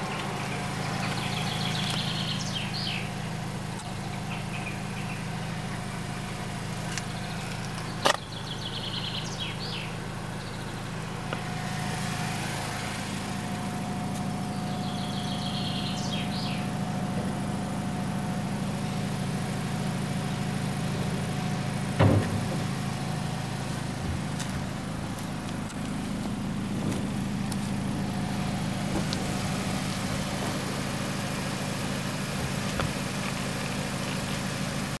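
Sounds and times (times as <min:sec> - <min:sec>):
car engine idling: 0:00.0 - 0:35.0
bird chirping: 0:00.1 - 0:03.2, 0:03.8 - 0:06.0, 0:07.0 - 0:10.9, 0:14.5 - 0:16.8
sharp knocks: 0:22.0 - 0:22.7.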